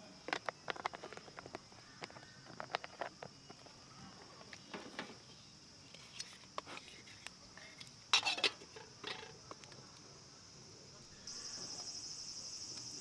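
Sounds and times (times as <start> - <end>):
high-pitched insect chorus: 0.0 - 13.0
small clicks and knocks: 0.2 - 3.8.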